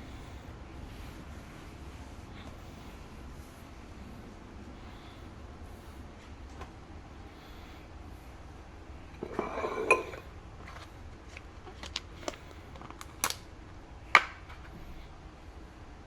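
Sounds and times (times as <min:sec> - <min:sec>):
dishes scraping: 0:09.1 - 0:10.4
dishes clinking: 0:09.2 - 0:10.3.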